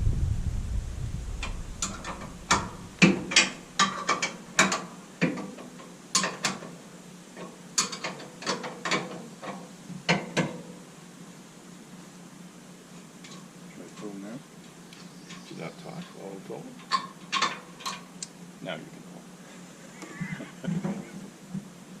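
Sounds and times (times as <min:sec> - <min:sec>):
low rumble: 0:00.0 - 0:03.8
metal parts clicking and clanking: 0:01.8 - 0:05.6, 0:07.4 - 0:09.6, 0:16.8 - 0:18.0.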